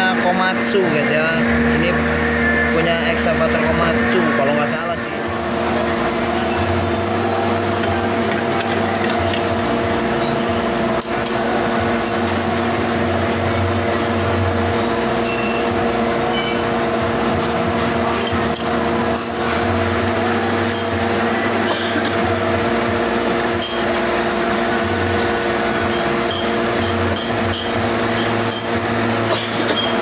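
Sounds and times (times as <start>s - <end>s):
metal lathe humming: 0.0s - 30.0s.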